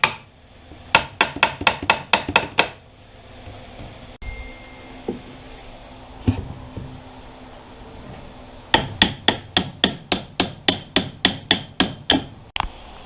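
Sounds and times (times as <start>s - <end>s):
hammer striking metal: 8.7s - 12.4s.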